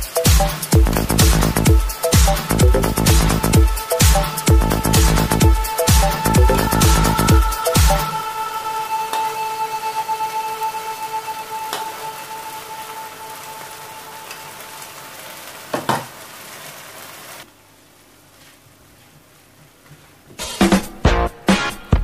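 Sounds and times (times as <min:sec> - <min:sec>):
background music: 0:00.0 - 0:15.2, 0:20.4 - 0:22.0
lentils sizzling in a frying pan: 0:10.9 - 0:17.5.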